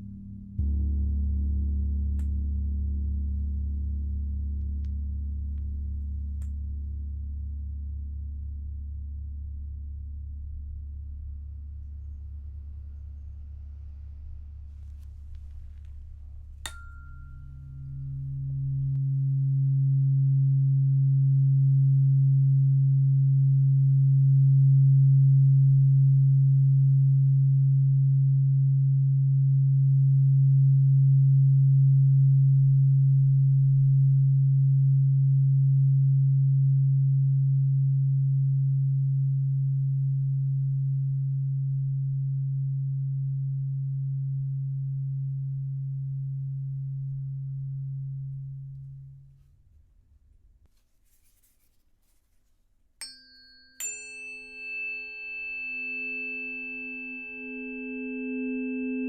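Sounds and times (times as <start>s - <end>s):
low tuning fork ringing: 14.9s - 19.9s, 53.0s - 59.0s.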